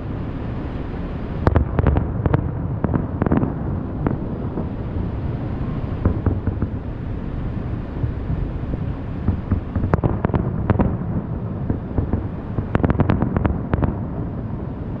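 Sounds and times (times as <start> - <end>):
fireworks cracking and popping: 11.6 - 14.1.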